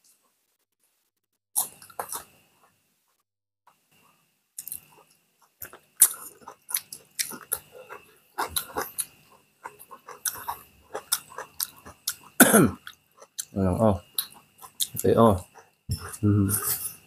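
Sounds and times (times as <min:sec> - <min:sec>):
people chewing food: 0:01.6 - 0:17.0
wet lip-smacks and mouth clicks: 0:04.6 - 0:04.9.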